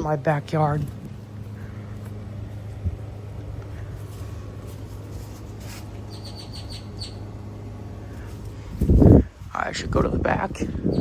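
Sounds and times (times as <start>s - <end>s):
steady low hum: 0.0s - 11.0s
small bird chirping: 6.0s - 7.3s.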